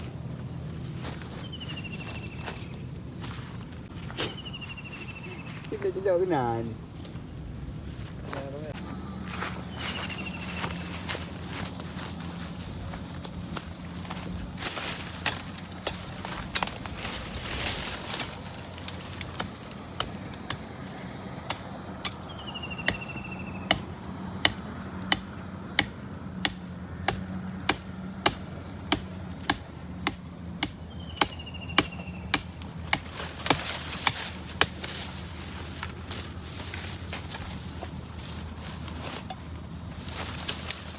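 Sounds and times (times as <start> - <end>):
wood being chopped: 21.5 - 35.0.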